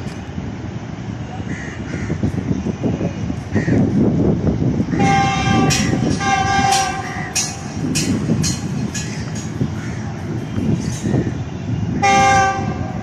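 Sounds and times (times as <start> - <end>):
passing train rumble: 0.0 - 13.0
wheels clacking over rail joints: 3.4 - 13.0
locomotive horn blasts: 4.9 - 7.3, 11.9 - 13.0.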